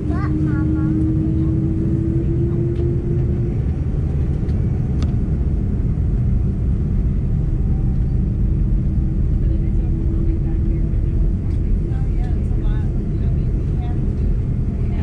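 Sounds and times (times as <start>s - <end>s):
droning hum: 0.0s - 15.0s
jet airliner rumble: 0.0s - 15.0s.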